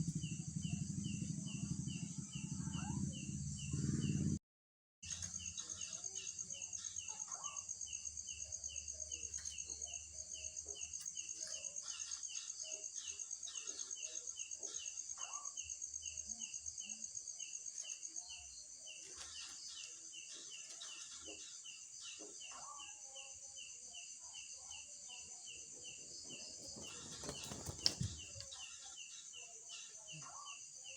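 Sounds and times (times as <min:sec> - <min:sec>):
high pulsing insect trill: 0:00.0 - 0:04.4, 0:05.1 - 0:30.9
low hum: 0:00.0 - 0:04.4
insects chirping rhythmically: 0:05.1 - 0:30.9.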